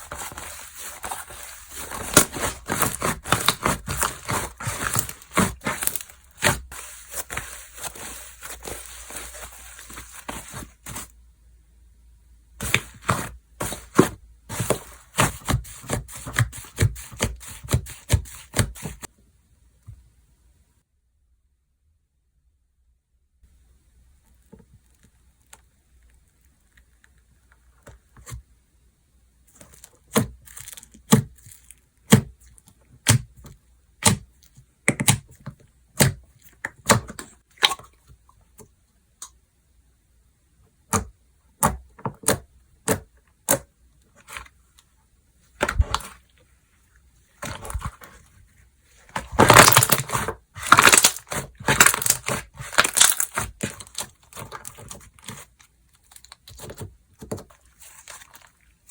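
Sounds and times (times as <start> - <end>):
slime popping and crackling: 0.1 - 9.5, 49.2 - 55.5.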